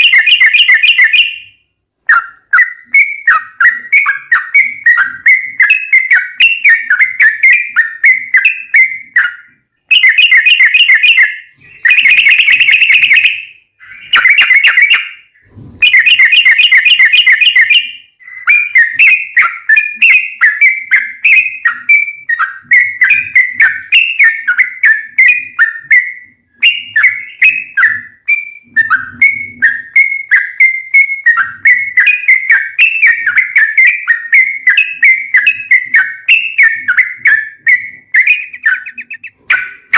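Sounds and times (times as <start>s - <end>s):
bird singing bubbly chattering phrases: 26.6s - 39.9s.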